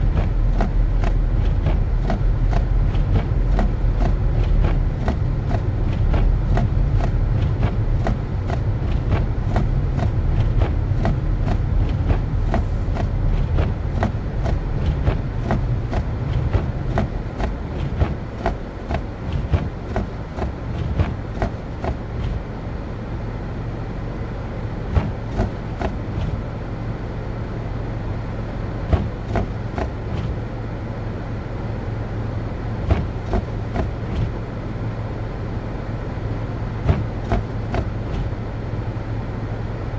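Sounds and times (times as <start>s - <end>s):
irregular clicks and knocks: 0.0s - 22.4s, 25.0s - 26.4s, 28.9s - 30.3s, 32.9s - 34.3s, 36.8s - 38.3s
car engine and road rumble: 0.0s - 39.9s.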